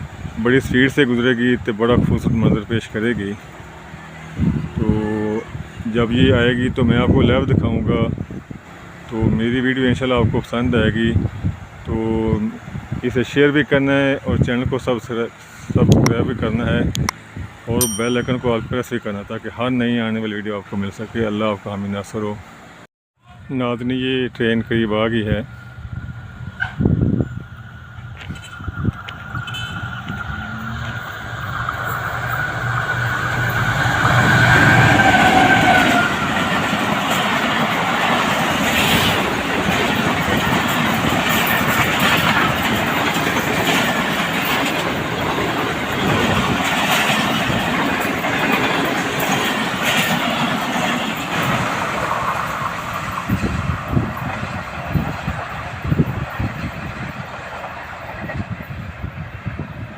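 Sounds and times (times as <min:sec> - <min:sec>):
train passing at speed: 0:00.0 - 0:22.8, 0:23.9 - 0:59.9
wheels clacking over rail joints: 0:27.9 - 0:59.2.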